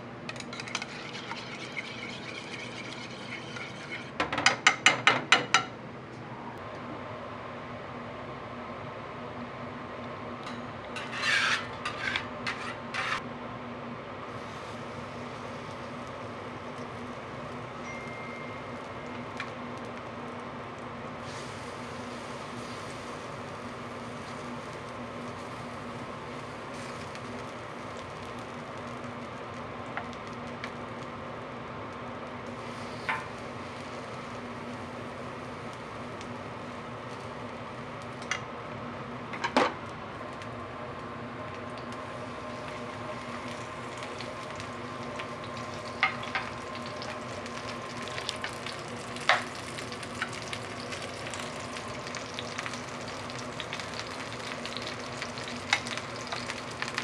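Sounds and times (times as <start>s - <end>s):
pancakes sizzling in oil: 11.0s - 13.2s, 14.3s - 31.2s, 32.4s - 38.3s, 41.7s - 57.0s.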